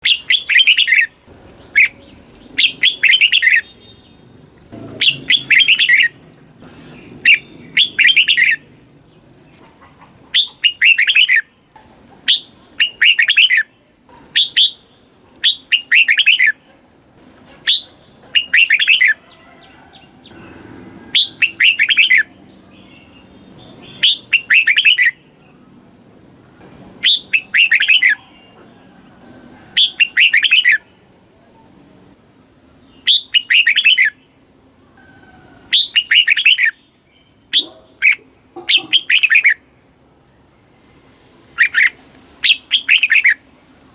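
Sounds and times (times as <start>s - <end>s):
bird singing warbling phrases: 0.0s - 16.6s, 17.6s - 19.2s, 20.3s - 25.8s, 26.4s - 28.6s, 29.8s - 31.0s, 32.8s - 34.4s, 35.7s - 39.7s, 41.6s - 43.5s.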